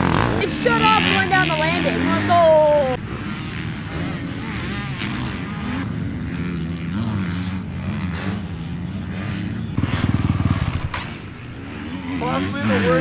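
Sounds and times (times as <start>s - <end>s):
dirt bike engines revving: 0.0s - 13.0s
dirt bike fast pulsing exhaust: 0.0s - 13.0s.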